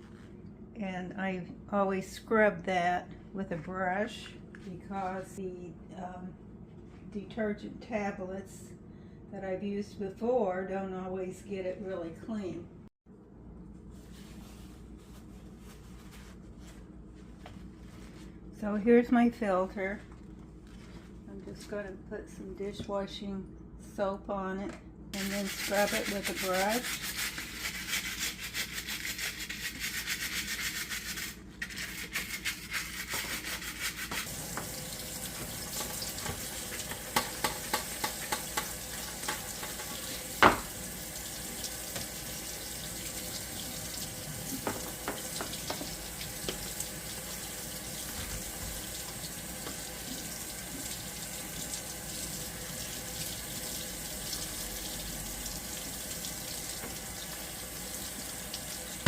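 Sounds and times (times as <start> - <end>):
brush scrubbing a filter: 13.9 - 18.4, 25.2 - 40.3
tap water running in sink: 25.2 - 31.1, 32.2 - 59.0.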